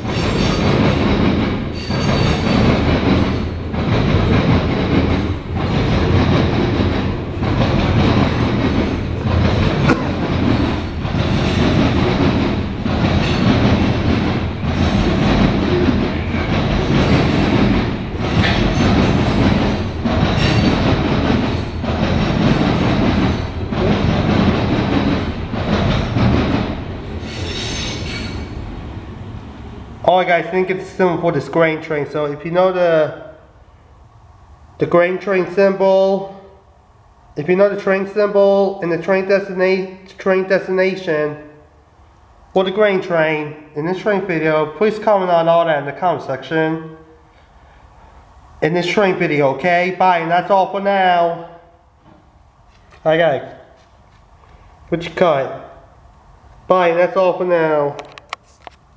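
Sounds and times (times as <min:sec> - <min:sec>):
freight train wheels clattering: 0:00.0 - 0:31.6.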